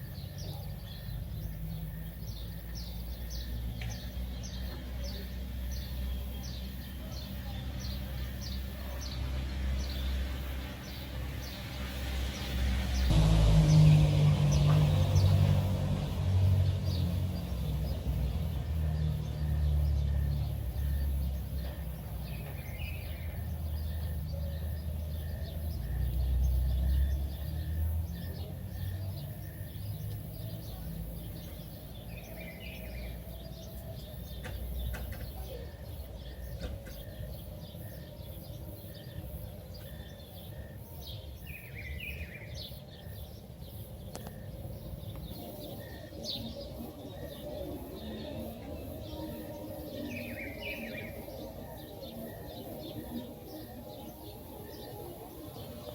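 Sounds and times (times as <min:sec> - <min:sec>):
low rumble: 0:12.4 - 0:21.0
bird chirped call: 0:16.6 - 0:55.9.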